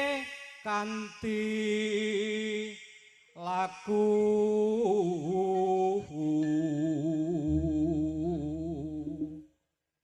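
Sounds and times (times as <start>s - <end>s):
person singing slow melody: 0.0s - 9.5s
low steady hum: 7.4s - 9.4s.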